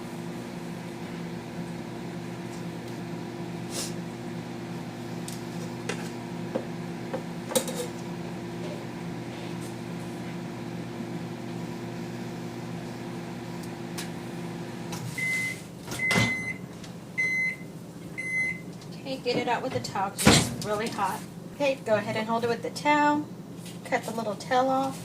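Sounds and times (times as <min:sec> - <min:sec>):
microwave oven humming: 0:00.0 - 0:25.0
microwave beeps: 0:15.1 - 0:18.7.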